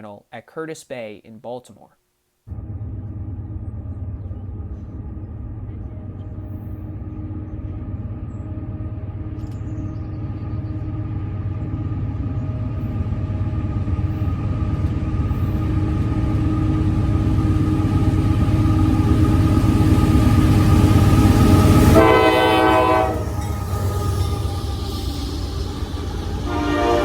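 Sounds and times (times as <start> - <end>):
diesel locomotive drone and rumble: 2.5 - 27.0.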